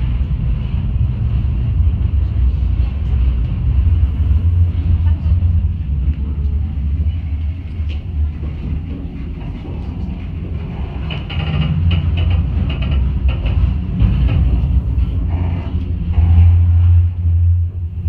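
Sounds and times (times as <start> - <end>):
train carriage rumbling and rattling: 0.0 - 18.0.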